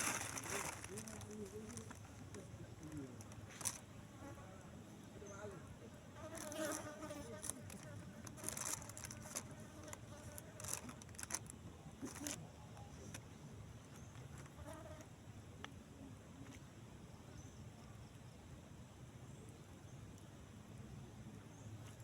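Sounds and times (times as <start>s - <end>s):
rustles: 0.0s - 4.4s, 6.2s - 15.1s
insect buzzing: 6.2s - 11.5s.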